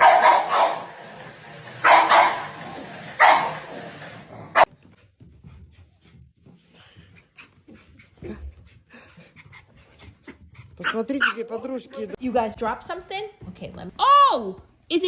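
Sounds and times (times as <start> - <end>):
dog barking: 0.0 - 0.9, 1.8 - 2.6, 3.2 - 3.6, 10.8 - 11.5.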